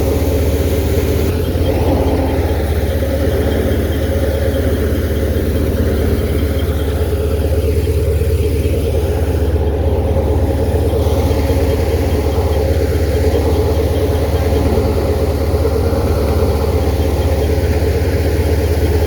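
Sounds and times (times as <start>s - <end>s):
engine droning with even pulsing: 0.0s - 19.0s.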